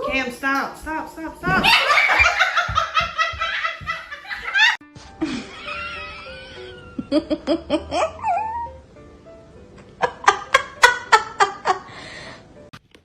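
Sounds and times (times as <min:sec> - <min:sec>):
music: 0:00.0 - 0:13.0
person laughing hard: 0:01.6 - 0:08.5.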